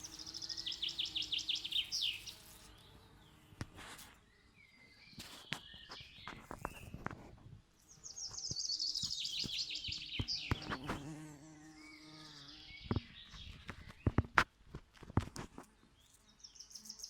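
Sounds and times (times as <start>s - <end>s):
songbird fast trill: 0.0s - 2.6s
bee buzzing: 0.0s - 4.2s, 7.8s - 13.2s.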